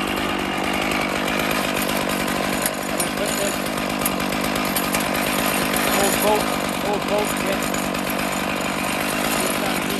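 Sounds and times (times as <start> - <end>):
chainsaw cutting log: 0.0 - 9.9.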